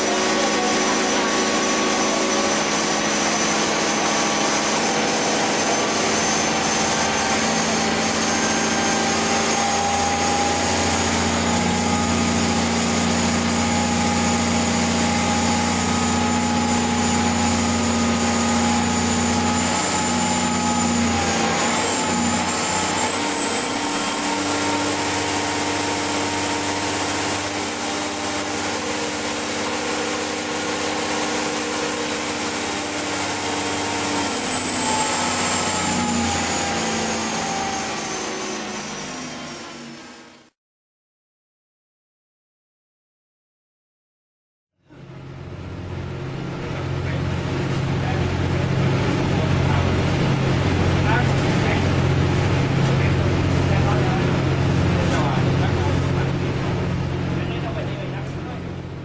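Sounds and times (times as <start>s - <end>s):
thin high whine: 0.0s - 39.9s
marine diesel engines running: 45.5s - 59.0s.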